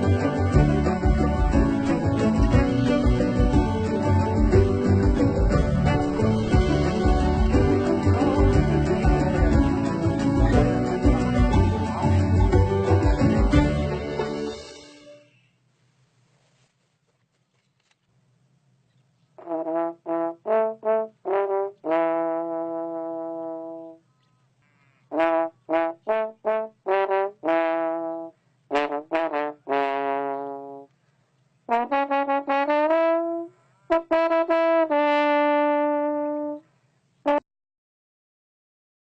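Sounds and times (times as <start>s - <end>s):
brass melody: 0.0s - 15.4s, 19.4s - 24.0s, 25.1s - 30.9s, 31.7s - 36.6s.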